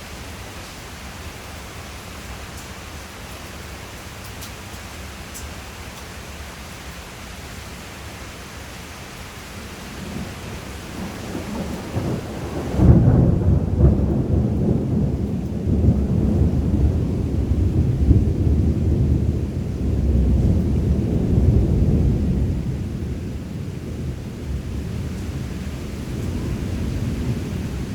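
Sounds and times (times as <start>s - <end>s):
steady rain hiss: 0.0s - 27.9s
thunder rumbling: 9.9s - 27.9s.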